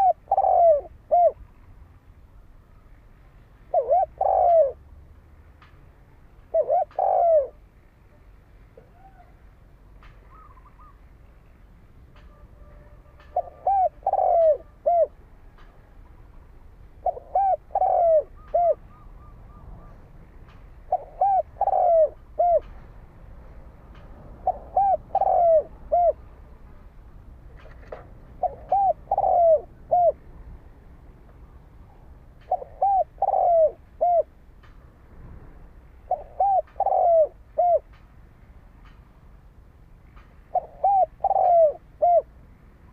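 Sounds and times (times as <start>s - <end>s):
dove cooing: 0.0s - 1.4s, 3.7s - 4.8s, 6.5s - 7.7s, 10.3s - 11.0s, 13.2s - 15.2s, 16.9s - 20.0s, 20.8s - 22.8s, 24.4s - 26.2s, 27.6s - 30.2s, 32.4s - 34.3s, 36.0s - 37.9s, 40.5s - 42.3s
faint small bird chirps: 10.2s - 11.6s.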